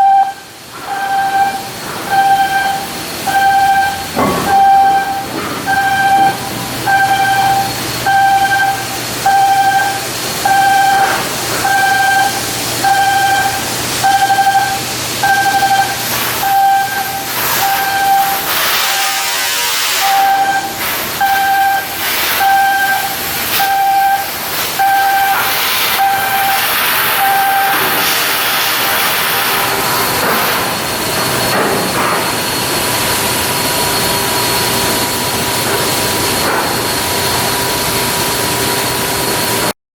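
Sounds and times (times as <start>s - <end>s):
electronic warning beeper: 0.0s - 29.5s
hissing industrial machinery: 0.0s - 39.7s.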